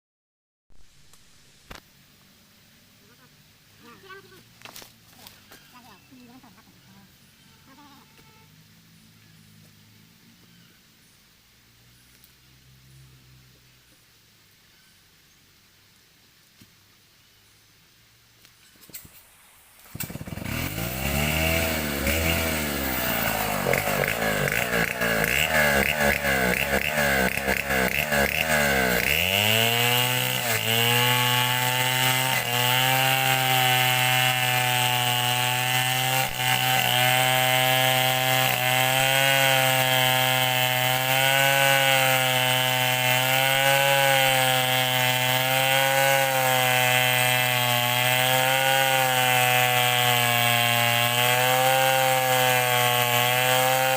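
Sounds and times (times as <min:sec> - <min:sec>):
chainsaw revving and cutting log: 0:19.8 - 0:53.9.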